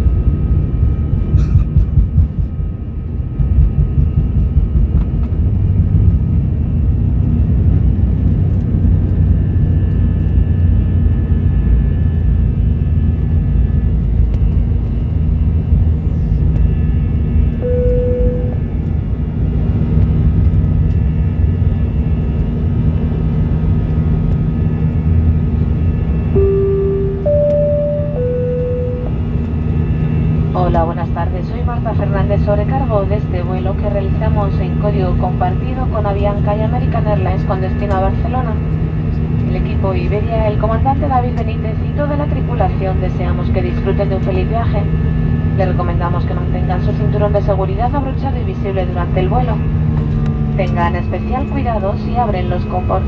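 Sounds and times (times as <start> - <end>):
aircraft cabin engine rumble: 0.0 - 53.0
short single tone: 17.6 - 18.6, 26.4 - 29.3
steady hum: 17.6 - 18.9, 26.3 - 29.8.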